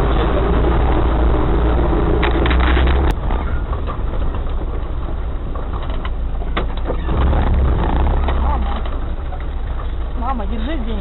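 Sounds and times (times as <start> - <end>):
vehicle engine low rumble: 0.0 - 11.0
knocks and clatter: 2.1 - 10.0.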